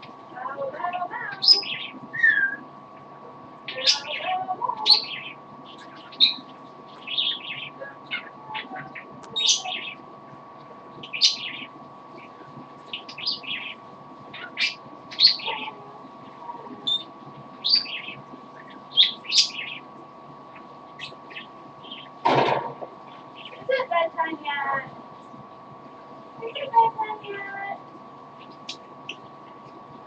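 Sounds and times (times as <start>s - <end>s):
faint electrical hum: 0.0s - 30.0s
parrot chirping and whistling: 1.4s - 2.6s, 16.8s - 19.8s.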